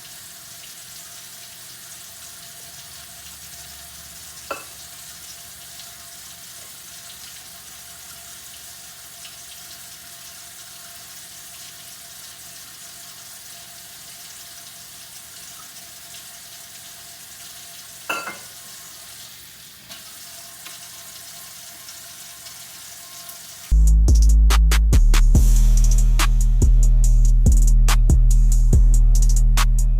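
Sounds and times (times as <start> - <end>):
water running into sink: 0.0 - 23.7
dishware clink: 4.5 - 4.8, 18.1 - 18.6.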